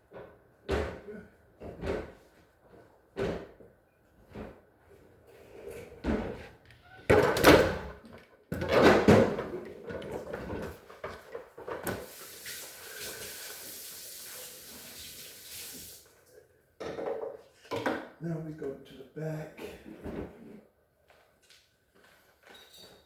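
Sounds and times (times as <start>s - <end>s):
steady hiss: 12.0s - 16.0s.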